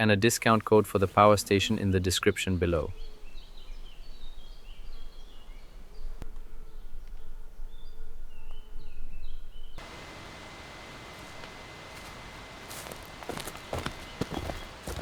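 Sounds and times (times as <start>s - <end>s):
small bird chirping: 2.4s - 15.0s
steady hiss: 9.8s - 15.0s.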